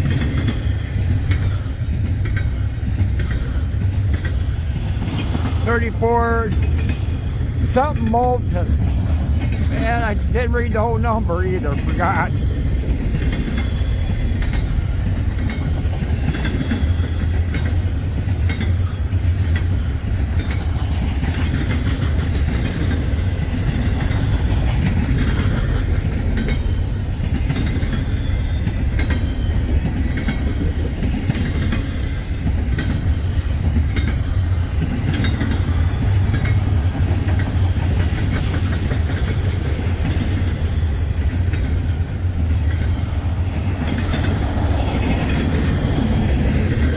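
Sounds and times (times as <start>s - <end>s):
freight train rumbling past: 0.0s - 46.9s.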